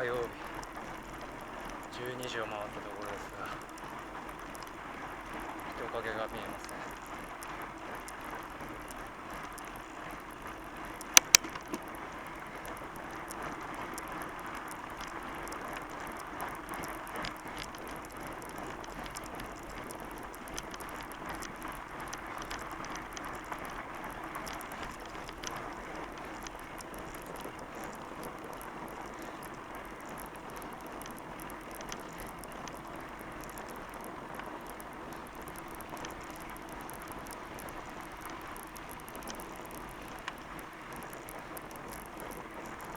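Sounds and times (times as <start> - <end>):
bike tyres rolling on trail: 0.0 - 42.9
bike sharp clicks: 11.0 - 12.0, 12.6 - 42.9.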